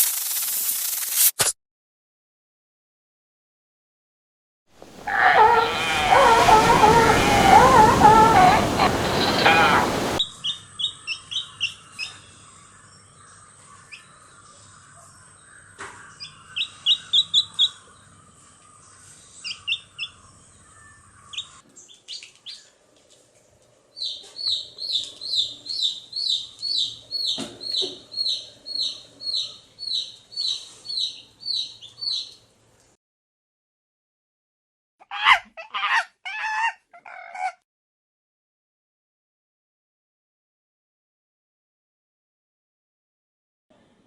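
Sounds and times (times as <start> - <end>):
small birds chirping: 4.8 - 12.2, 24.0 - 32.4.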